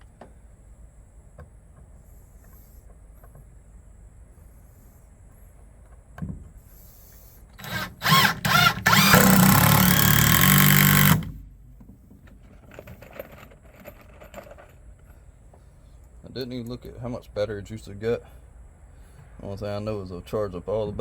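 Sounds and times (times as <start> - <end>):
cordless drill drilling into wood: 7.6 - 11.4.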